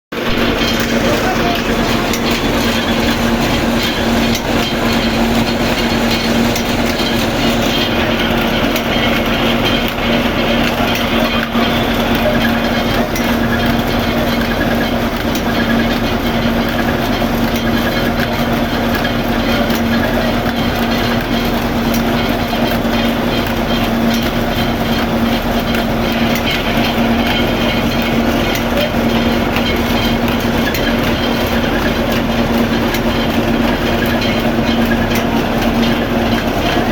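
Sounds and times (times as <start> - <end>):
flour mill humming and rattling: 0.1 - 36.9.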